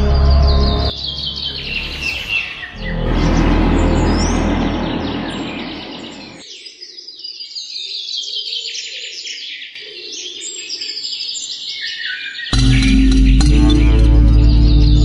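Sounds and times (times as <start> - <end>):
loud music: 0.0 - 6.4, 12.6 - 15.0
birds chirping: 0.0 - 15.0.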